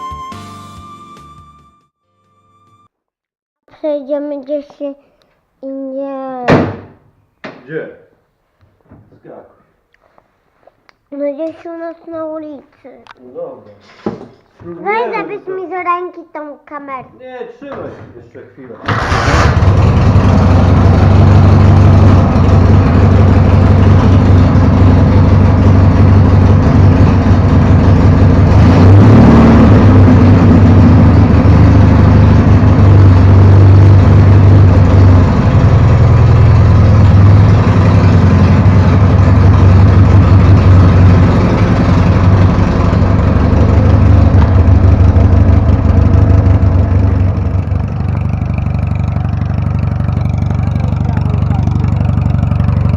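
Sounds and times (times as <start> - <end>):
motorcycle engine running: 18.9 - 52.9.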